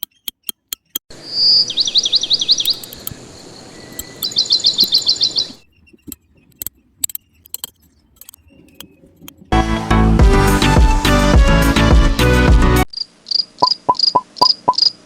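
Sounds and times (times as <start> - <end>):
bird chirping: 0.0 - 9.2, 13.3 - 15.0.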